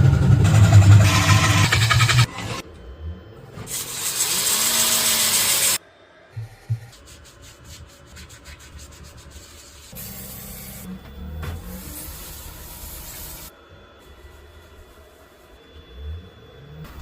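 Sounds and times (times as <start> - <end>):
sanding wood: 6.9 - 10.0.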